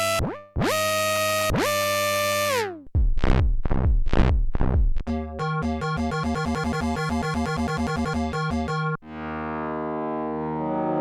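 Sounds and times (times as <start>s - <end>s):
deep punchy synth hits: 3.0s - 5.1s
synthesizer held gliding note: 9.0s - 11.0s.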